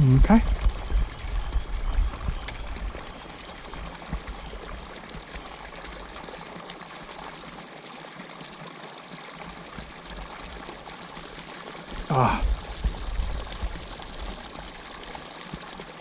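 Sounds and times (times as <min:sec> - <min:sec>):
rainwater pouring into pond: 0:00.0 - 0:16.0.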